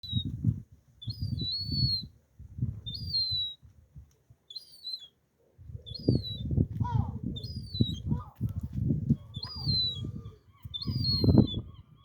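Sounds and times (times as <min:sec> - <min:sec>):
gull chick begging peeps: 0:09.2 - 0:12.0.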